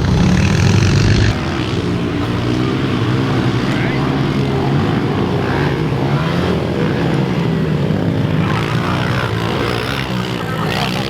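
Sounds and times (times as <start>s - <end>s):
motorbike engine running: 0.0s - 11.0s.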